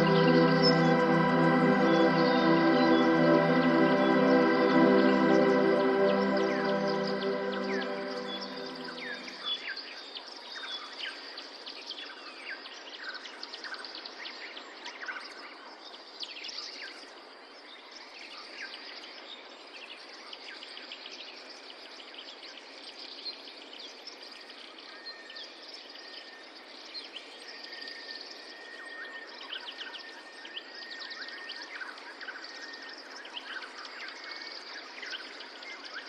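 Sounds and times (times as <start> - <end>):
steady background hiss: 0.0 - 9.4.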